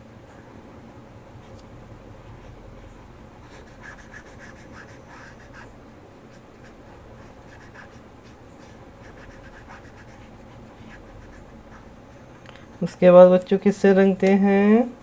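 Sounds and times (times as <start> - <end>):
steady low hum: 0.0 - 15.0
crayon scratching on paper: 3.5 - 5.7, 6.3 - 12.0.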